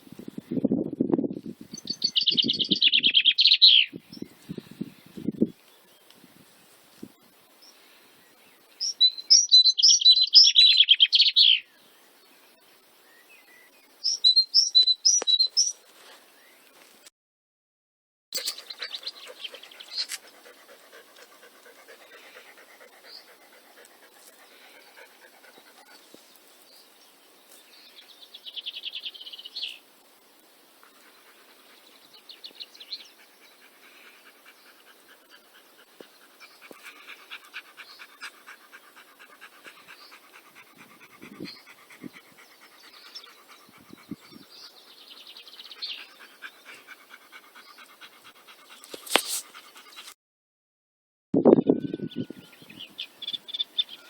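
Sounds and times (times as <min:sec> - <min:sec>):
songbirds chirping and trilling: 0:01.8 - 0:06.3, 0:07.5 - 0:16.9, 0:18.4 - 0:50.1, 0:51.4 - 0:54.0
dog panting: 0:18.4 - 0:26.2, 0:30.9 - 0:50.2.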